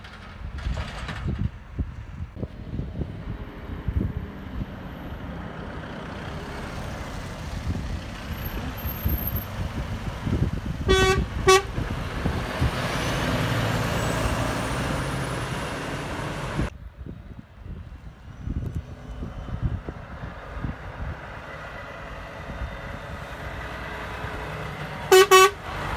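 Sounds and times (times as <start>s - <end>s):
heavy vehicle passing close: 0.0s - 16.7s, 17.7s - 25.9s
road traffic rumbling: 0.0s - 25.9s
truck horn toots: 10.8s - 11.8s, 25.1s - 25.7s.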